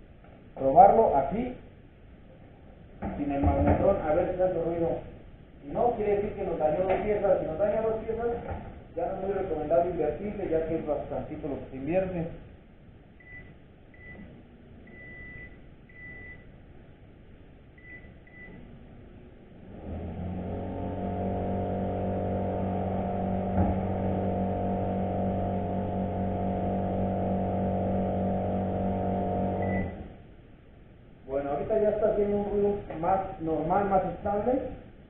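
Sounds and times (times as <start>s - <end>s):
microwave electrical hum: 0.0s - 35.0s
microwave keypad beeping: 29.6s - 30.0s.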